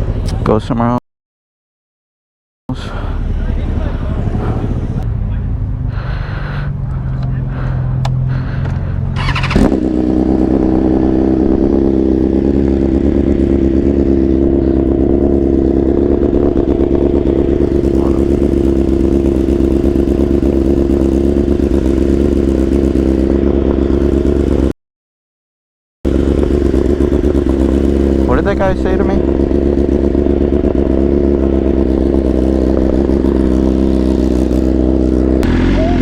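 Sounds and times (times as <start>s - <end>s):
motorcycle engine running: 0.0s - 0.8s, 2.7s - 24.7s, 26.0s - 36.0s
sharp engine burst: 9.2s - 10.0s.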